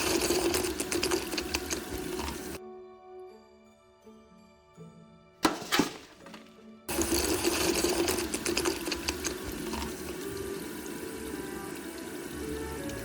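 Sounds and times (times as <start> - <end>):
water splashing and running: 0.0 - 2.6, 5.4 - 13.0
splashy clicks: 5.4 - 10.3.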